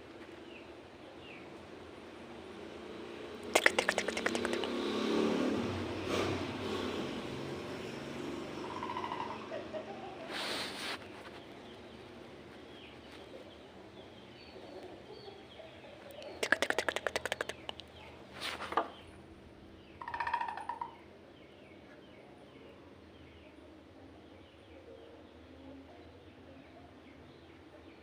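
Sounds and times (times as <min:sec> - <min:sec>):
civet calling: 0:03.4 - 0:04.8, 0:08.6 - 0:10.6, 0:16.1 - 0:18.0, 0:20.0 - 0:21.0.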